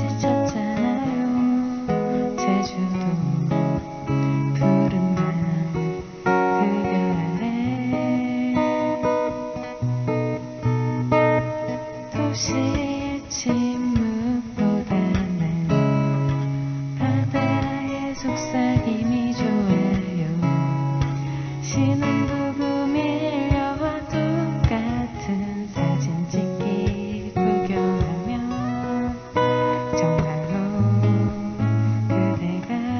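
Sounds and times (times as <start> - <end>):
acoustic guitar strumming: 0.0 - 32.9
person singing faintly: 17.0 - 20.7, 21.5 - 31.6.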